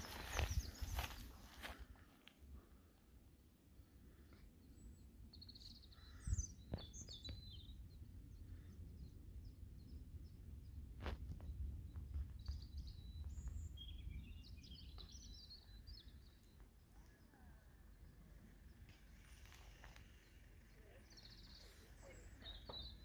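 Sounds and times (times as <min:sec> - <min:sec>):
wind rumble on microphone: 0:00.0 - 0:01.3, 0:06.2 - 0:16.1
small birds chirping: 0:00.0 - 0:02.0, 0:03.8 - 0:23.0.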